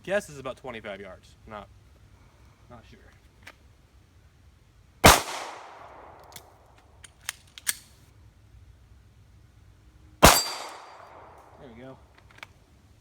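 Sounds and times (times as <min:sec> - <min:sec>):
pistol shots with echo: 0:05.0 - 0:06.2, 0:10.2 - 0:11.4.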